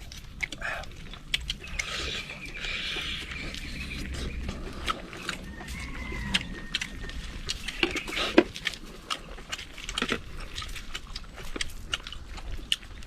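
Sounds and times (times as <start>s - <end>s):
chewing mouth sounds: 0.0s - 13.0s.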